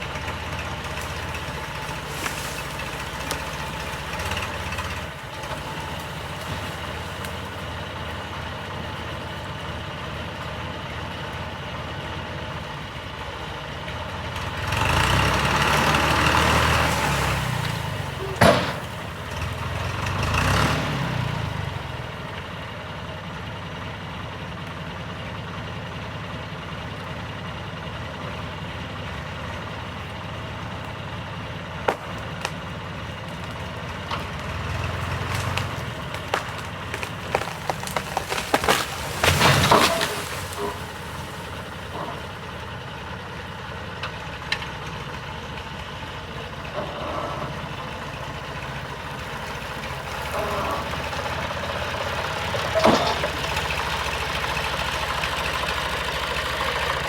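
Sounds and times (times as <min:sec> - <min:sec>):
tractor diesel engine revving: 0:00.0 - 0:24.1, 0:25.8 - 0:57.0.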